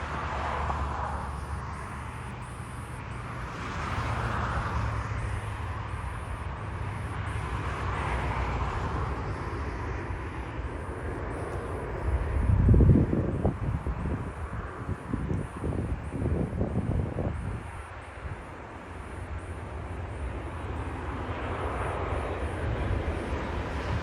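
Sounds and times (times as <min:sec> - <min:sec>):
jet engines rumbling: 0:00.0 - 0:24.0
wind buffeting microphone: 0:08.2 - 0:24.0.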